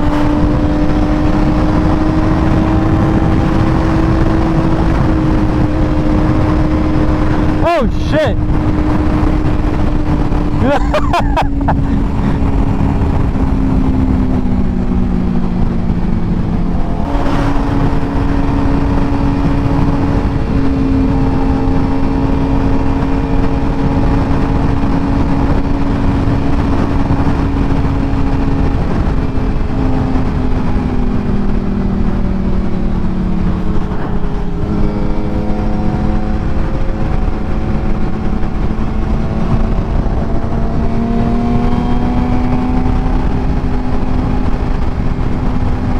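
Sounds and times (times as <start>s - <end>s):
motorcycle engine revving: 0.0s - 7.6s, 8.4s - 45.9s
wind and road noise: 0.0s - 45.9s.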